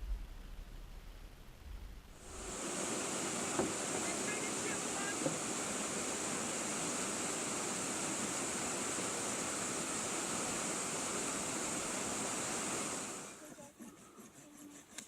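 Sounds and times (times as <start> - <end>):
fast-flowing river water: 2.2 - 13.4.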